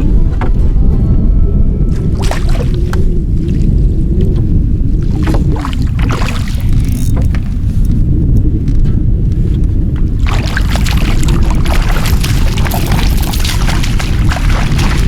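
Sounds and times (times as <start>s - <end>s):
wind buffeting microphone: 0.0s - 15.0s
water splashing: 1.9s - 8.0s, 10.0s - 15.0s.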